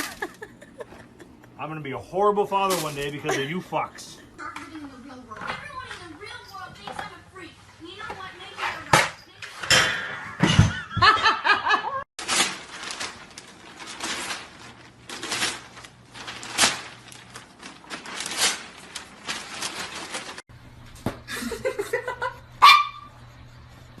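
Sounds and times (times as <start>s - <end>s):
dog barking: 22.6s - 23.1s.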